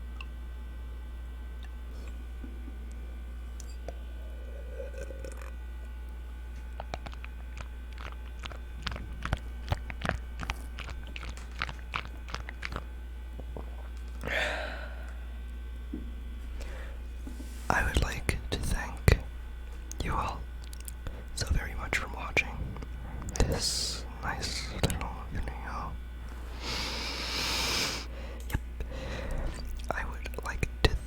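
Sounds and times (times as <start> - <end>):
radiator low buzz: 0.0 - 31.0
wet tongue and lip clicks: 6.6 - 14.3, 19.9 - 25.6, 28.4 - 31.0.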